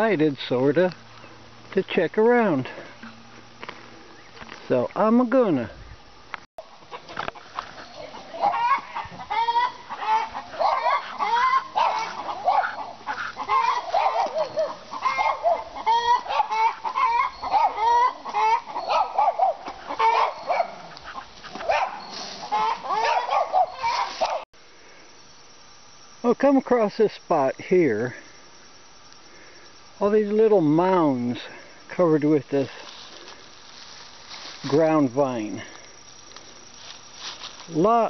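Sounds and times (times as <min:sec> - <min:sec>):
chickens clucking: 0:06.6 - 0:24.4.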